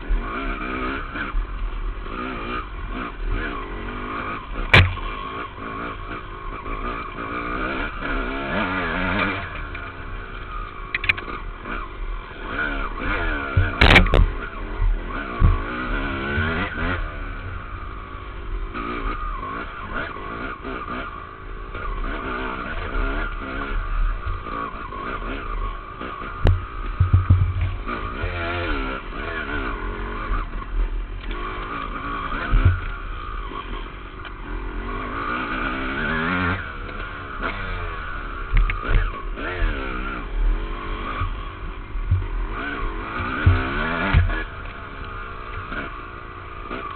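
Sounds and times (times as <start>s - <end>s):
dirt bike engine revving: 0.0s - 46.9s
bike knocking over bumps: 4.7s - 5.1s, 13.5s - 14.4s, 15.4s - 15.7s, 26.4s - 27.8s, 32.5s - 32.9s, 43.2s - 44.4s.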